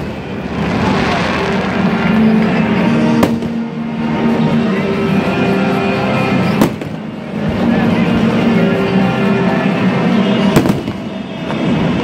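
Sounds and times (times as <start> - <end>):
fireworks bursting: 0.0 - 4.2, 6.4 - 7.2, 10.4 - 12.0
music playing: 0.0 - 12.0
sharp firework bang: 3.2 - 3.6.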